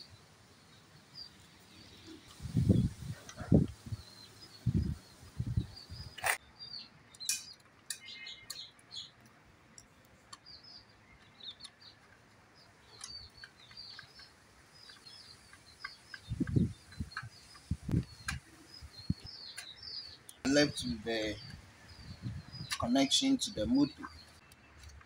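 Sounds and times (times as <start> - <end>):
small birds chirping: 0.0 - 25.0
sharp clicks: 14.9 - 18.5.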